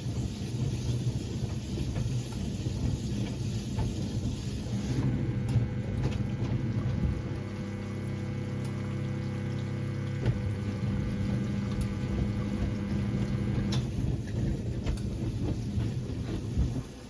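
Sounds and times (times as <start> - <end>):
washing machine motor hum: 0.0 - 17.0
water sloshing in drum: 0.0 - 17.0
washing machine click: 10.0 - 15.2.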